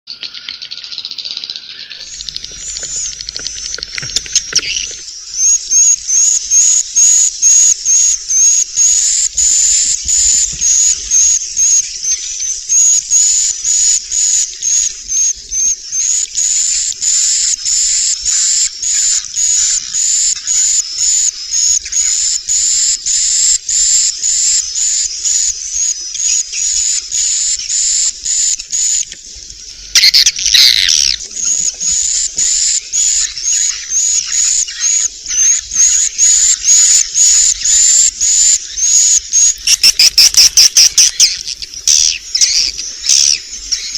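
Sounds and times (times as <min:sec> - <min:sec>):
many birds twittering: 0:00.1 - 0:43.9
rapid high bird chirps: 0:00.4 - 0:43.9
louder bird call: 0:01.6 - 0:15.6, 0:29.9 - 0:43.9.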